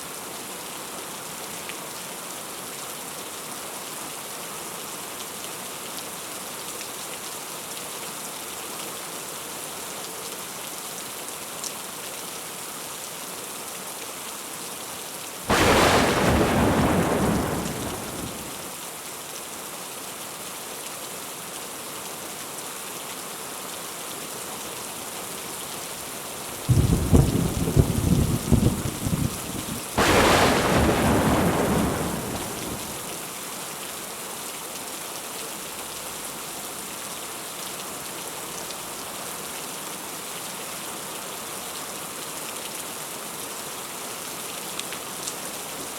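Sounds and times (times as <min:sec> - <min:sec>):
heavy rain falling: 0:15.5 - 0:18.7, 0:26.4 - 0:33.3
thunder cracking and rumbling: 0:15.5 - 0:18.7, 0:26.7 - 0:33.2.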